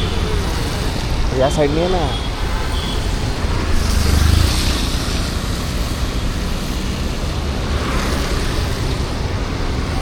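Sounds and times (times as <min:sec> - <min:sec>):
street traffic roar: 0:00.0 - 0:10.0.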